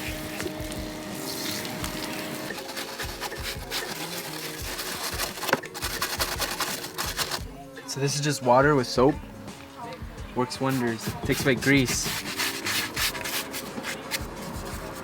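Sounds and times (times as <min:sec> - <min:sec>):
hands scrubbing and wiping: 0:00.0 - 0:07.4, 0:10.6 - 0:15.0.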